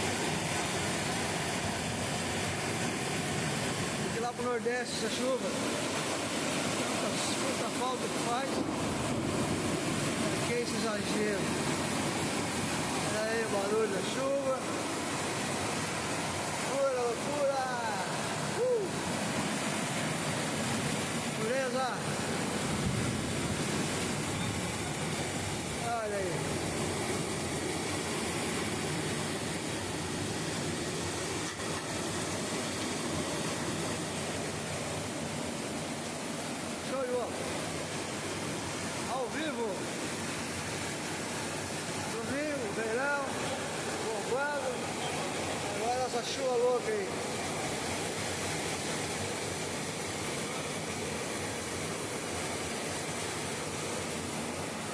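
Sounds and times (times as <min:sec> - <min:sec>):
heavy rain pouring: 0:00.0 - 0:54.9
strong wind: 0:22.1 - 0:27.4.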